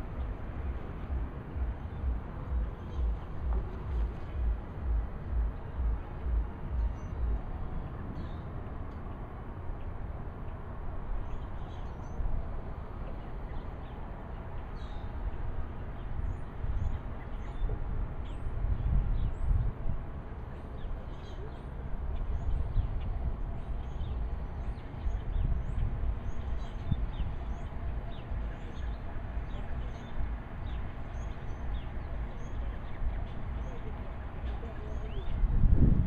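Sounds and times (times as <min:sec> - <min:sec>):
small birds chirping: 0:00.0 - 0:36.0
steady low rumble: 0:00.0 - 0:36.0.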